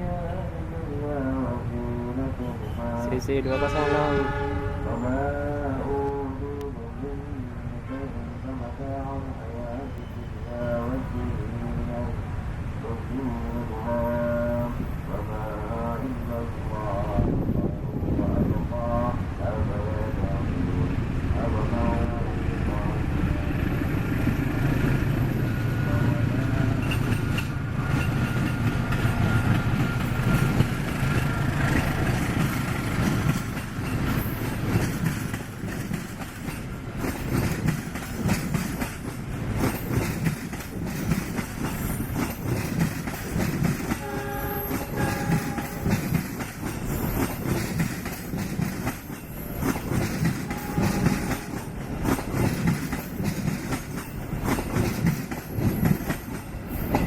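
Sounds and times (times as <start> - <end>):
train horn blast: 2.6 - 6.4, 43.8 - 46.2, 50.3 - 51.8
locomotive engine drone: 6.2 - 38.2
train wheels clattering over rail joints: 26.5 - 57.0.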